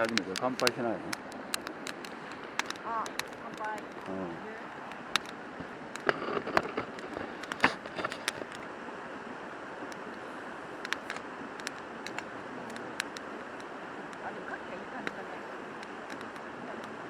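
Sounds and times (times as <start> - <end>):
sharp clicks and knocks: 0.0 - 8.7, 10.8 - 13.3, 15.8 - 17.0
river rushing: 0.0 - 17.0.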